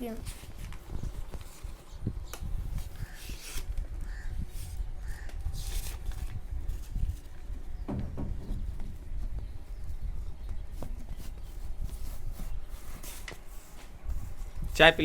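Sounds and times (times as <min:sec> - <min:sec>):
paper rustling and creasing: 0:00.0 - 0:07.6, 0:10.7 - 0:15.0.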